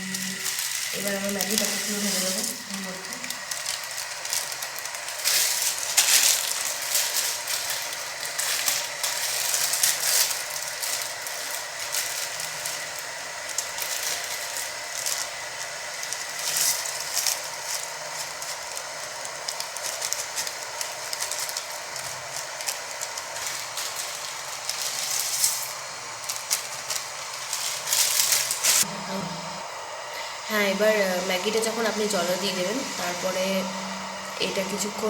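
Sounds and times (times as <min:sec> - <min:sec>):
crackling and clatter: 0:00.0 - 0:28.9
kettle water bubbling: 0:00.0 - 0:35.0.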